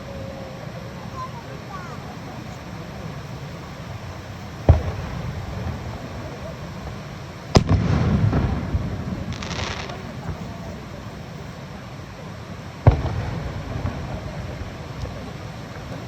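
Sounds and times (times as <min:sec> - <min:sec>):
firework crackling hiss: 0:00.0 - 0:16.0
firework shells bursting: 0:03.8 - 0:11.4.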